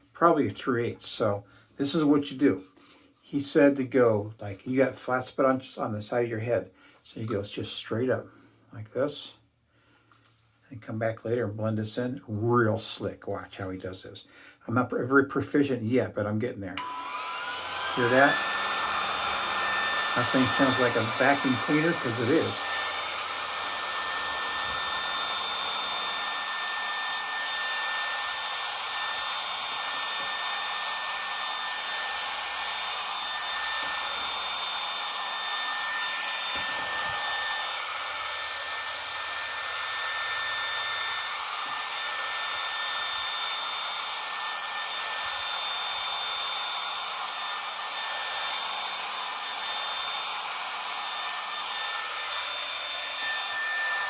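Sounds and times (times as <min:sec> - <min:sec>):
vacuum hair clippers whirring: 0:16.8 - 0:54.0.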